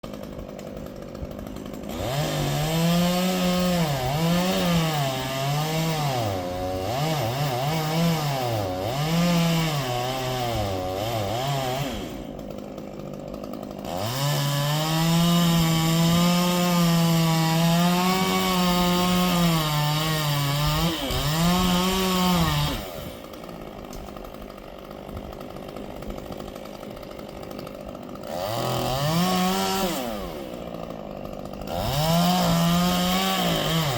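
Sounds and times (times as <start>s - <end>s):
chainsaw revving and cutting wood: 0.0s - 33.9s.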